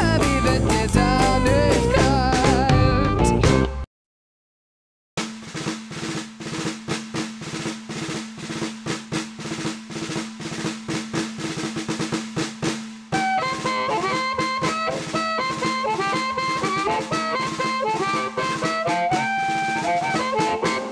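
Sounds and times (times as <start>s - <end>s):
snare drum roll: 5.2s - 20.9s.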